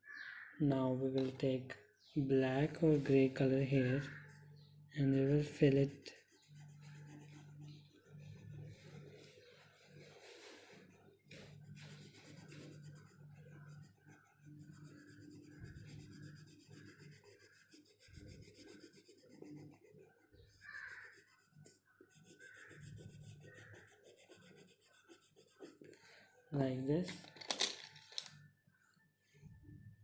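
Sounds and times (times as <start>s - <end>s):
pencil scribbling on paper: 5.0s - 26.0s.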